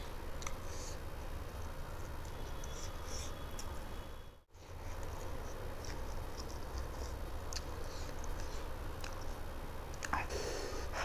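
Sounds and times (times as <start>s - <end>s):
person chewing food: 4.6s - 10.3s.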